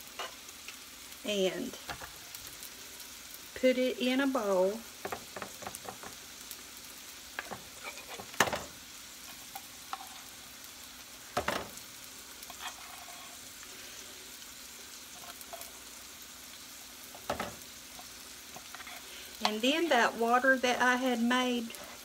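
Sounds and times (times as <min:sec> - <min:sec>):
chicken sizzling in a skillet: 0:00.0 - 0:22.0
spatula scraping a metal can: 0:07.8 - 0:08.3, 0:12.5 - 0:13.4.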